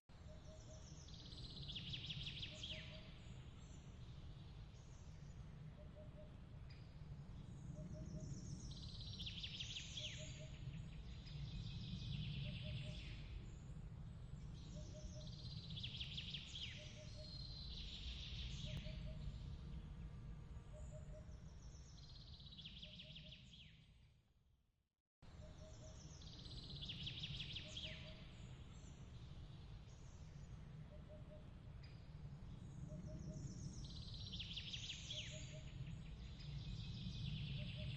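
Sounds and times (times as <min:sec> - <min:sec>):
twittering bird chirps: 0:30.8 - 0:32.0.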